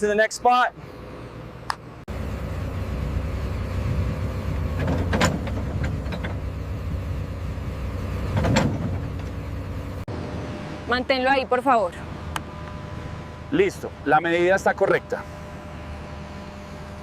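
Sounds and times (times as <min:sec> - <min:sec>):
heavy machinery engine rumble: 0:00.7 - 0:17.0.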